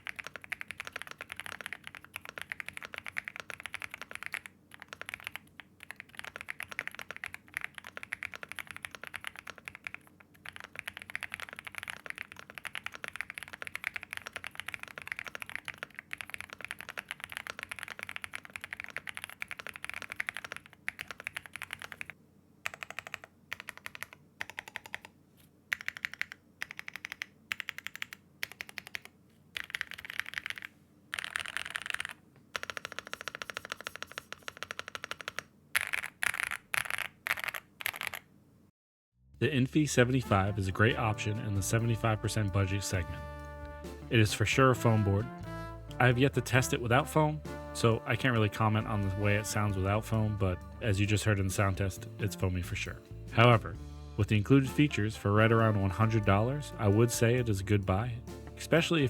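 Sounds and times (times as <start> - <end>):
mechanical keyboard typing: 0.0 - 25.1, 25.7 - 38.3.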